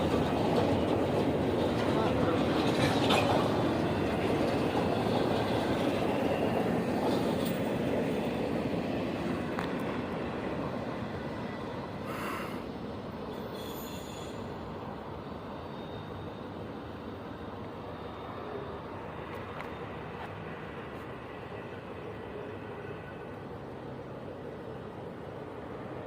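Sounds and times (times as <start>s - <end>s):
train rolling past: 0.0s - 26.0s
faint wheel squeal: 13.3s - 14.7s, 15.4s - 20.2s.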